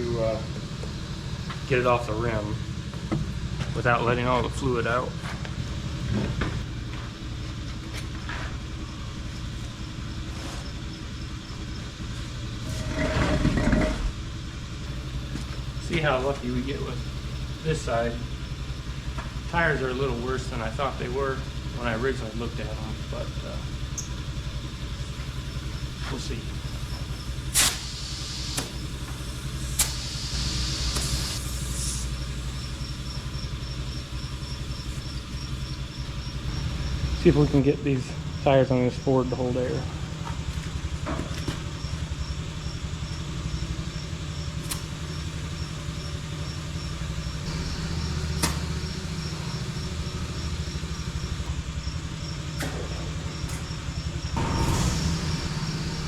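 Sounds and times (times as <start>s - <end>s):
engine idling: 0.0s - 56.0s
hiss of air: 27.3s - 32.9s, 54.3s - 56.0s
click: 48.4s - 48.7s.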